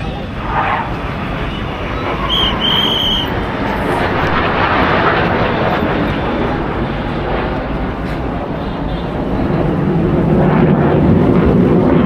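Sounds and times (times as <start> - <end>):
rushing jet noise: 0.0 - 12.0
short high whistle: 2.2 - 3.4.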